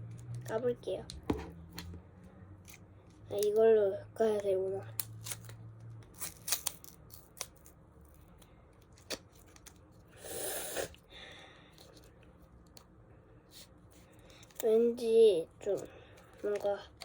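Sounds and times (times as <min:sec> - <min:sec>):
wrapper tearing: 0:05.0 - 0:09.9.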